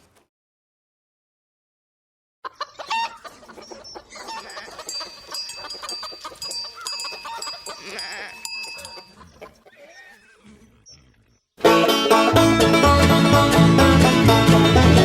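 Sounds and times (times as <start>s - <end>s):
chickens clucking: 2.4s - 10.2s.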